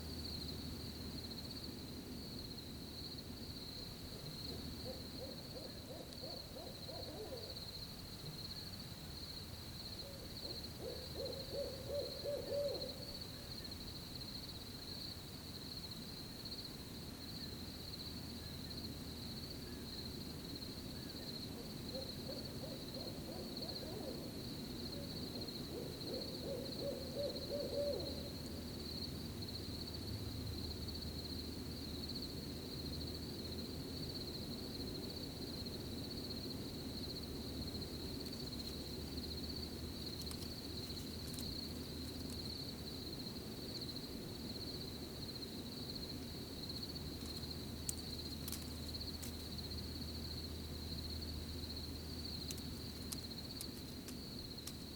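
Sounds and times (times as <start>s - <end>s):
high cricket trill: 0.0s - 54.9s
owl hooting: 4.5s - 7.6s, 10.0s - 13.5s, 21.0s - 28.4s.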